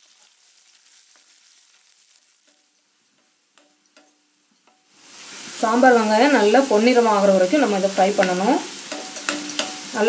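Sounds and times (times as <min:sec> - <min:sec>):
food sizzling in oil: 0:00.0 - 0:10.0
spatula knocking against pan: 0:08.2 - 0:09.8.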